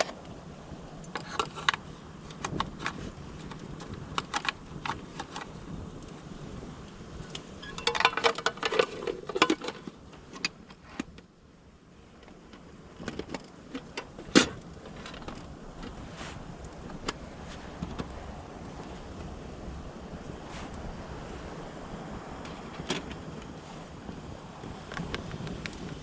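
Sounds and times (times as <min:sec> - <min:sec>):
metal objects clicking and knocking: 0:01.1 - 0:05.5, 0:07.3 - 0:11.1.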